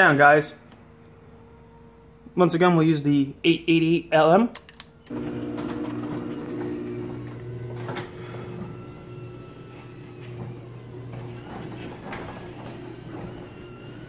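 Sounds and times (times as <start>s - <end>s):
garage door motor humming: 5.1s - 14.0s.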